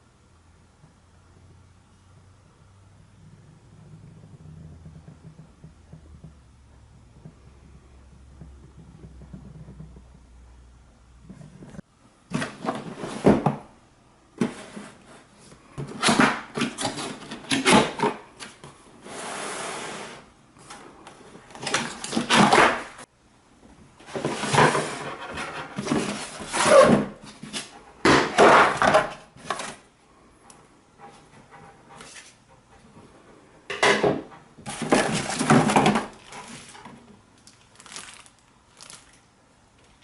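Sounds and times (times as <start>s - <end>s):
rustling and scraping of packaging: 11.4s - 13.7s, 14.4s - 23.1s, 24.0s - 29.9s, 33.9s - 40.0s.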